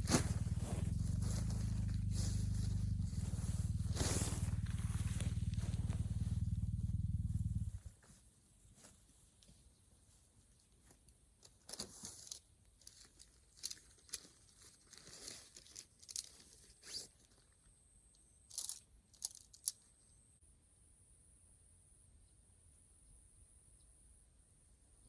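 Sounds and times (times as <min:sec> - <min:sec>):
crisp tearing and crinkling: 0:11.7 - 0:17.4.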